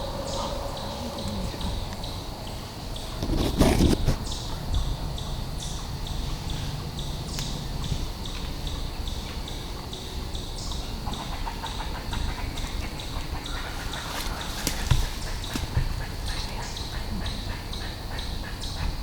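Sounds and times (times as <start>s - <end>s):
steady high chirp: 0.0s - 3.2s
footsteps crunching through dry leaves: 13.6s - 15.8s.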